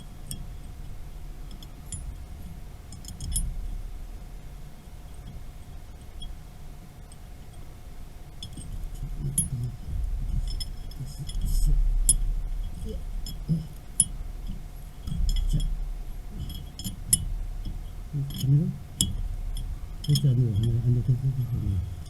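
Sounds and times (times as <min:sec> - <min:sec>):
low rumbling: 0:00.0 - 0:06.8, 0:08.2 - 0:22.0
faint steady hum: 0:00.0 - 0:22.0
metal parts clinking: 0:16.4 - 0:20.9.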